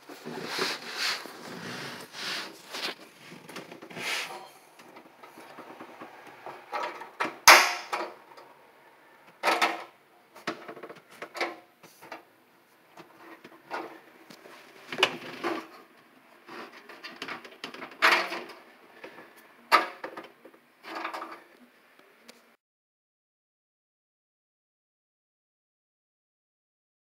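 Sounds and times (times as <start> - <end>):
sharp loud knock: 7.5 - 7.9.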